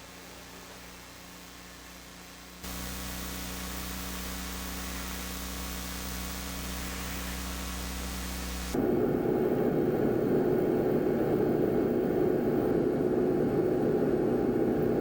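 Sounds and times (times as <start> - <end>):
recording hiss: 0.0 - 10.0
electrical hum: 0.0 - 15.0.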